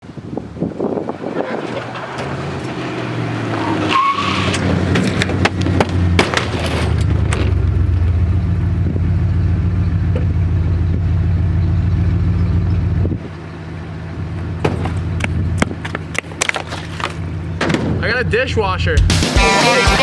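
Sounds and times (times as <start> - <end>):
vehicle engine running: 4.6 - 20.0.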